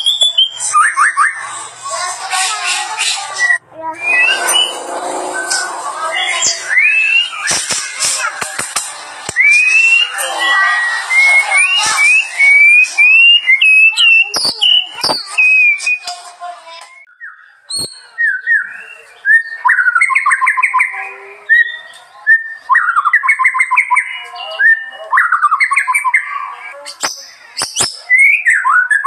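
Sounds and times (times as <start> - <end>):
songbird whistling and trilling: 0.0 - 1.5, 3.0 - 4.9, 9.3 - 16.1, 17.0 - 29.0.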